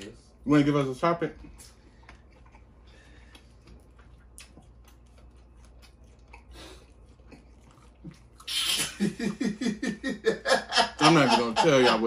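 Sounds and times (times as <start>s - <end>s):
person chewing: 1.4s - 9.5s.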